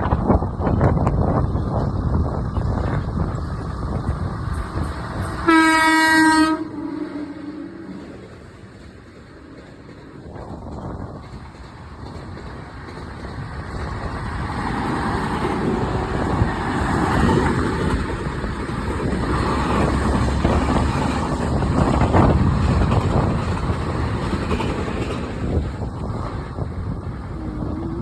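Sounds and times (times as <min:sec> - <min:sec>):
train rumbling on track: 0:00.0 - 0:28.0
wind: 0:00.0 - 0:28.0
sharp track clacks: 0:07.8 - 0:27.9.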